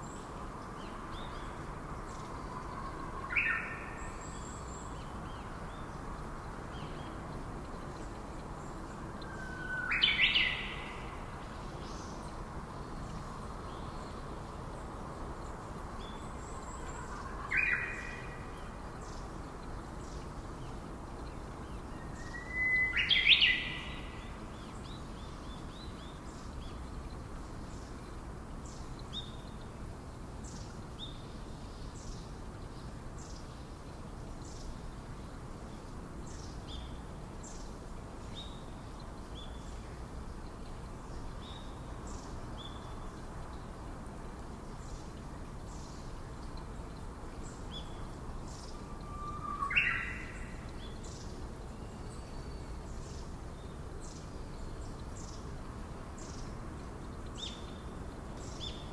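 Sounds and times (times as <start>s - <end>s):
steady hiss: 0.0s - 58.9s
faint high bird chirps: 47.8s - 53.1s
bird call with upward sweep: 49.1s - 50.2s.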